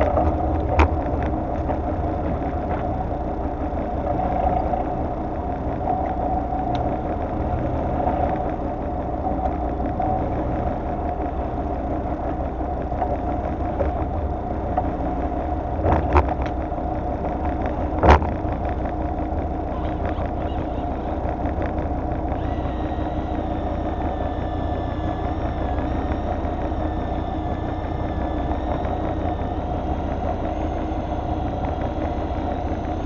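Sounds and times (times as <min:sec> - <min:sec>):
boat engine running at low revs: 0:00.0 - 0:33.0.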